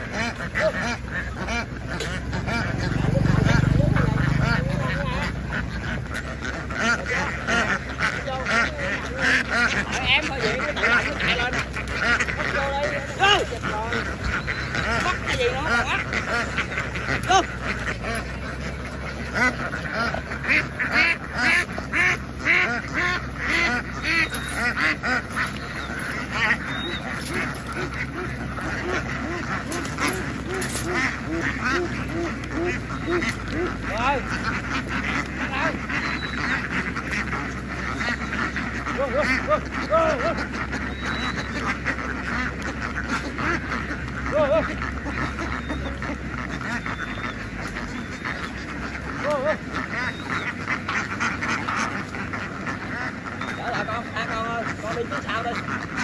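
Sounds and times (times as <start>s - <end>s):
ducks quacking: 0.0s - 56.0s
low steady hum: 0.0s - 56.0s.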